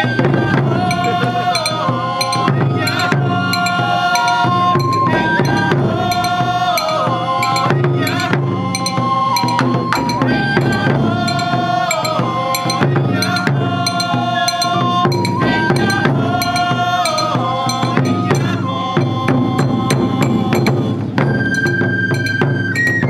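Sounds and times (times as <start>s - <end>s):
taiko drums: 0.0s - 23.0s
gliding held melody: 0.9s - 18.6s.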